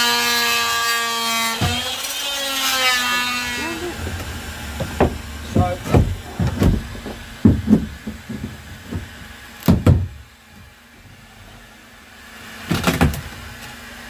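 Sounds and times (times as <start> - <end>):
knocks and thuds of tools on wood: 1.6 - 2.0, 4.0 - 10.7, 12.6 - 13.4
steady low hum: 2.8 - 14.0.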